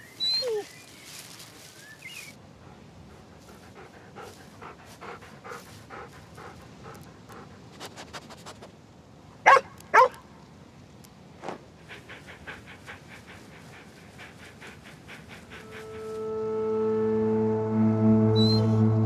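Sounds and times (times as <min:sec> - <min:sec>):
dog panting: 0:02.6 - 0:08.7, 0:11.8 - 0:16.2
dog barking: 0:09.4 - 0:10.2.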